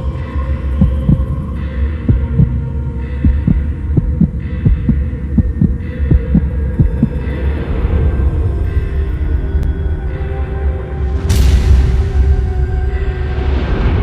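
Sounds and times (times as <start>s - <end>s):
low drone music with held tones: 0.0s - 14.0s
pulsing heartbeat-like low beat: 0.7s - 9.9s.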